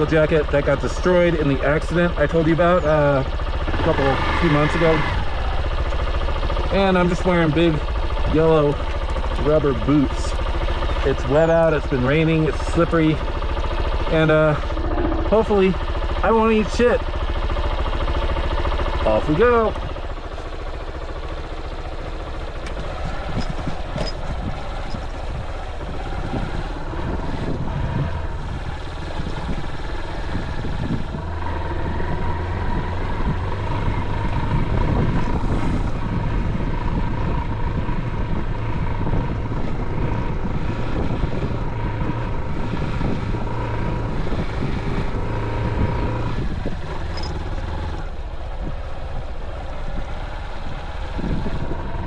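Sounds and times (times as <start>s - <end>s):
motorcycle engine running: 0.0s - 52.0s
wind noise on microphone: 22.6s - 52.0s.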